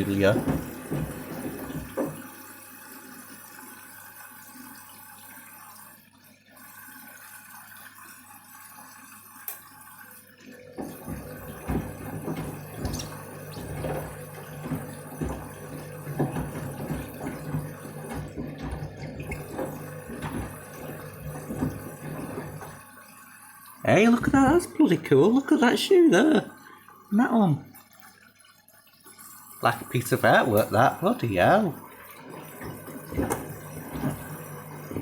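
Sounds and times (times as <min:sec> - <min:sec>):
washing machine drum rumbling: 0:00.0 - 0:02.4, 0:10.7 - 0:22.9, 0:23.9 - 0:25.8, 0:29.6 - 0:35.0
water rushing: 0:00.0 - 0:02.4, 0:10.5 - 0:23.0, 0:23.7 - 0:27.8, 0:29.6 - 0:35.0
water sloshing: 0:00.0 - 0:02.4, 0:10.4 - 0:23.0, 0:23.8 - 0:26.9, 0:29.6 - 0:35.0.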